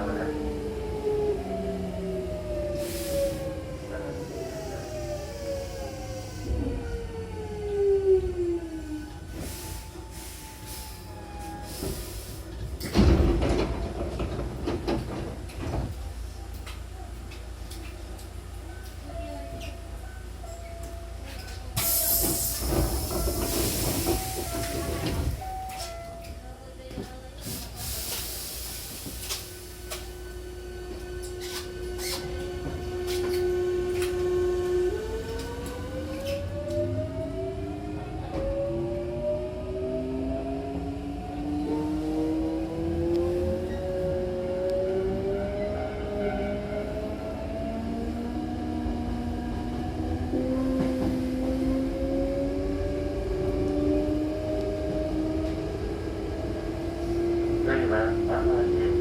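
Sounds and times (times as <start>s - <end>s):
train low rumble: 0.0s - 59.0s
sliding train doors thumping: 11.7s - 16.2s, 21.8s - 25.9s.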